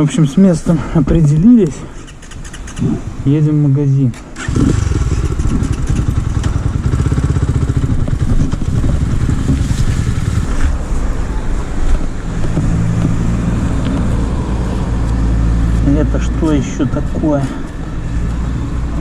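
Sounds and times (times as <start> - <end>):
motorcycle engine running: 4.5 - 10.8.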